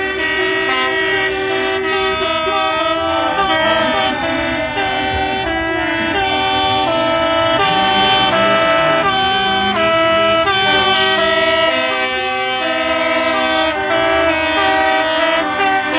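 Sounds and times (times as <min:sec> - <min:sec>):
truck air horns blowing: 0:00.0 - 0:15.9.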